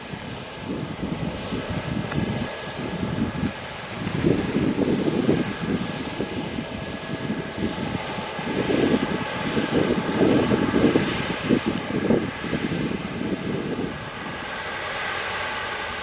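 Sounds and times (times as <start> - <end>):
faint steady engine whine: 0.0 - 16.0
jet engines crackling rumble: 0.0 - 16.0.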